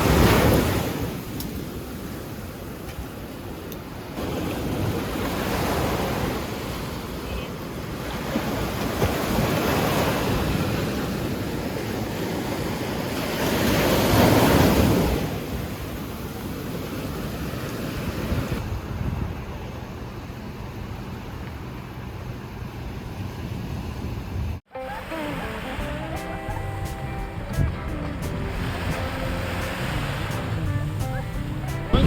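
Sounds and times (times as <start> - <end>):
sea waves breaking on shore: 0.0 - 32.0
wind buffeting microphone: 7.8 - 21.0.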